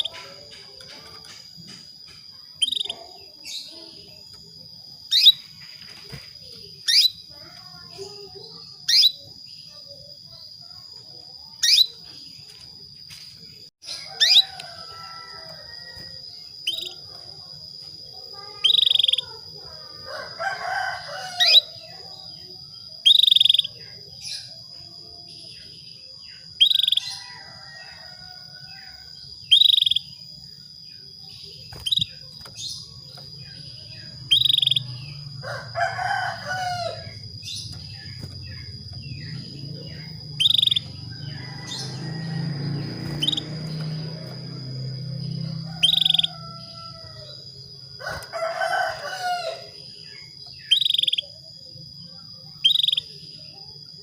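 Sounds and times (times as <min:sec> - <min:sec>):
canary chirping calls: 0:02.6 - 0:04.3, 0:05.0 - 0:05.6, 0:06.4 - 0:10.0, 0:11.5 - 0:12.0, 0:13.8 - 0:17.1, 0:18.2 - 0:24.8, 0:26.3 - 0:30.2, 0:31.3 - 0:51.4, 0:52.6 - 0:53.1
rooster crowing: 0:13.9 - 0:16.3, 0:19.7 - 0:21.8, 0:26.9 - 0:29.2, 0:34.4 - 0:50.0.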